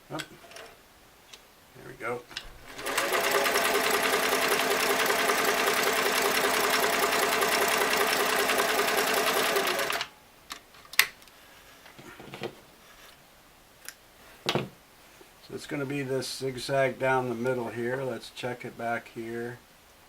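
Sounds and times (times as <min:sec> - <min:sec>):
sewing machine running: 0:02.6 - 0:10.1.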